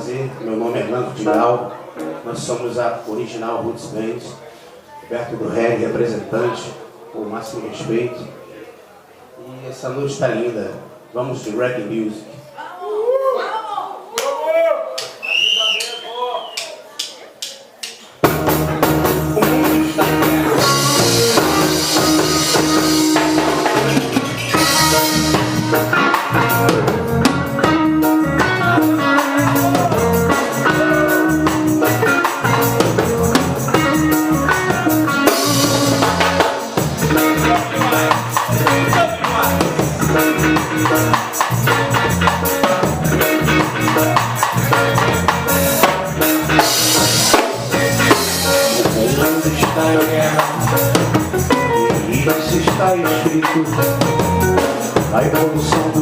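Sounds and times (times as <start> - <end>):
guitar: 0.0 - 6.9, 18.2 - 56.0
reggae band playing: 0.0 - 7.0, 17.8 - 56.0
bass line: 18.2 - 56.0
drum kit: 18.2 - 56.0.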